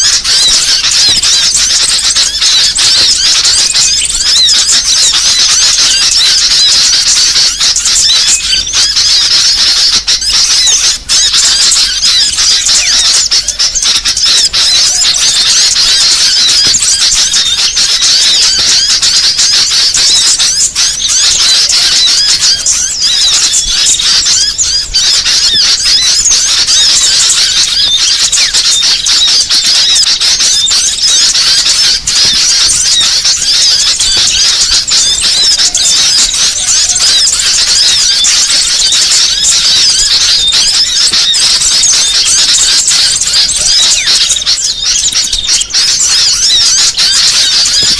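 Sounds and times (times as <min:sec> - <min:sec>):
songbirds chirping: 0:00.0 - 0:47.9.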